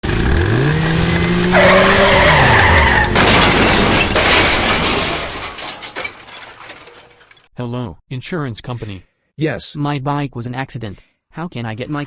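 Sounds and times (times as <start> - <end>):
motorbike crash burst: 1.2 - 6.9
tyre skid squealing: 1.5 - 3.2.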